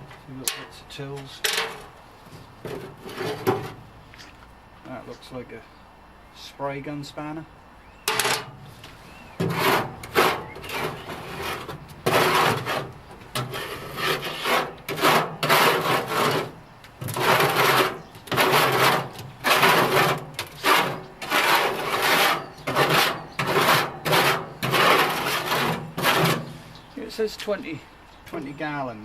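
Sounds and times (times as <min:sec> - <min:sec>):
scrubbing inside metal tank: 0:02.6 - 0:03.9, 0:08.1 - 0:26.8.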